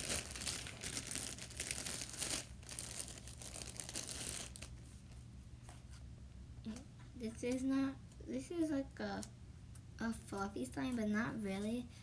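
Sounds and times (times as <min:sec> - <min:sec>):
slime squishing and crackling: 0:00.0 - 0:04.7.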